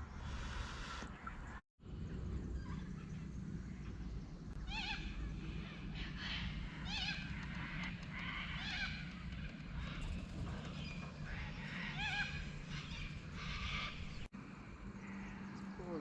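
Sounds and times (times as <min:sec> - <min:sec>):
low rumble: 0:01.4 - 0:15.0
bird calling: 0:02.6 - 0:14.3.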